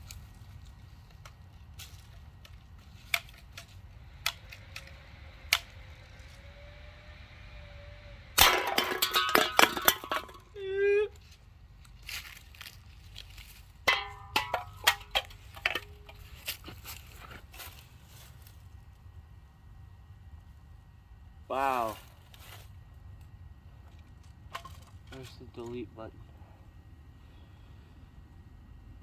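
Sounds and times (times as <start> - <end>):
empty cans crashing and clattering: 8.4 - 10.5, 13.9 - 16.2.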